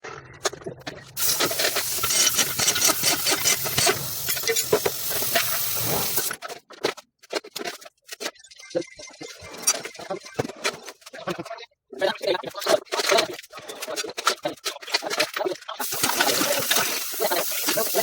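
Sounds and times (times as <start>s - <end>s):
loud hiss: 1.2s - 6.3s, 15.8s - 18.0s.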